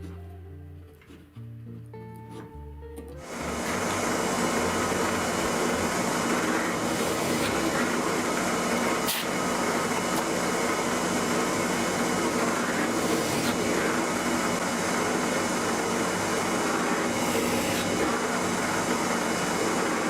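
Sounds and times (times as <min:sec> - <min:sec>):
power tool motor whirring: 0:03.2 - 0:20.0.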